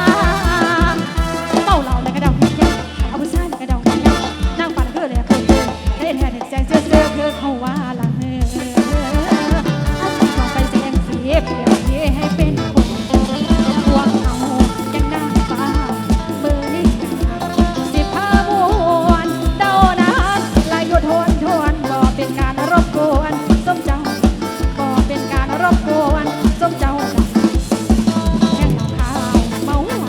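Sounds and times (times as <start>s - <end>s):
driving kick drum: 0.0s - 7.3s, 8.2s - 30.0s
wavering melodic lead: 8.5s - 30.0s.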